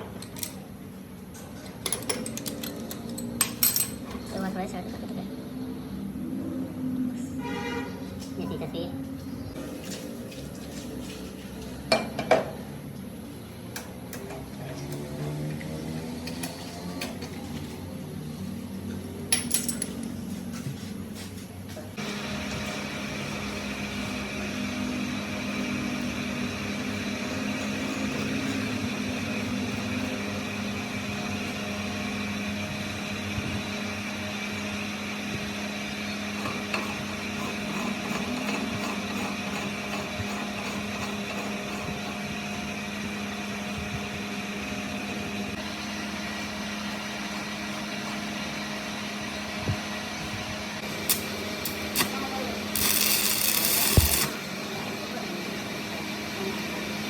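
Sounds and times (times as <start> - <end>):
workshop machine motor hum: 20.2 - 57.0.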